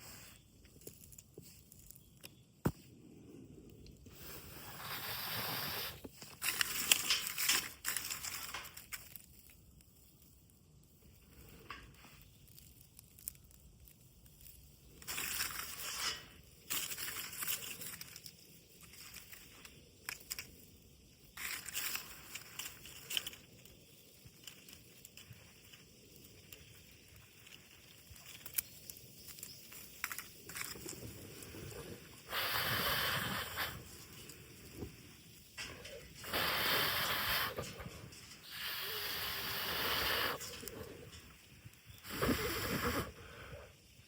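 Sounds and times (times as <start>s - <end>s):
dry material crunching and rustling: 0.0s - 2.9s, 4.1s - 32.3s.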